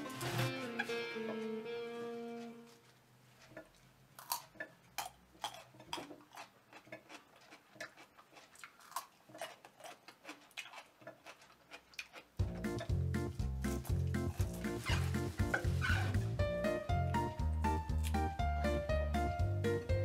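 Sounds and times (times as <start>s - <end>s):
person chewing crunchy radish: 3.3s - 16.1s.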